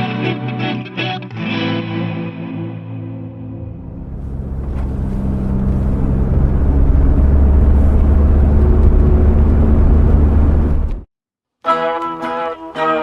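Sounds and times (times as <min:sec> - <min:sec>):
low rumbling noise effect: 0:03.5 - 0:11.1.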